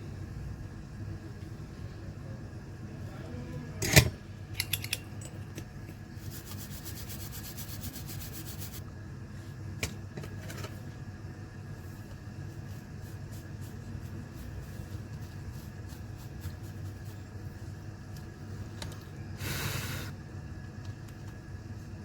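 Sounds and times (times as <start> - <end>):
tools clicking and knocking: 3.8 - 5.7.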